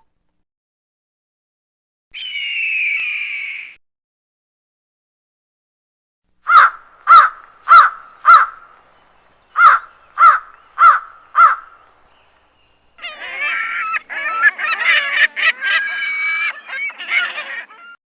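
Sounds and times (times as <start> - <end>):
clamour of overlapping bird calls: 2.2 - 3.8, 6.4 - 18.0
short harsh bird calls: 6.4 - 18.0.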